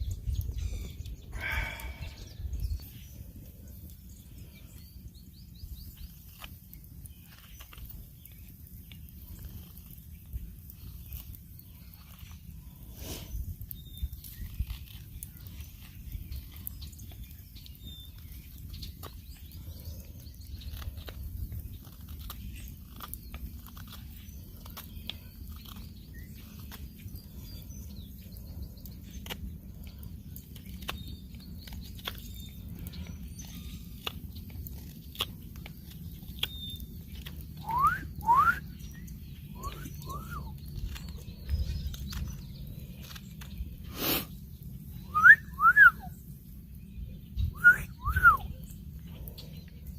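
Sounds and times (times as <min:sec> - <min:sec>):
faint bird chirps: 0:36.2 - 0:49.9
quick rising whistles: 0:37.6 - 0:38.7, 0:39.6 - 0:40.5, 0:45.1 - 0:46.1, 0:47.6 - 0:48.5.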